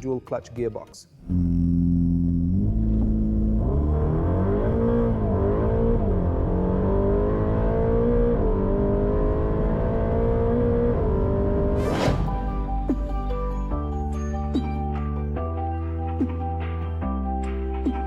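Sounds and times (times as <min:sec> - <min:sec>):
background music: 0:00.0 - 0:07.6, 0:09.1 - 0:18.0
car engine accelerating: 0:01.3 - 0:12.5.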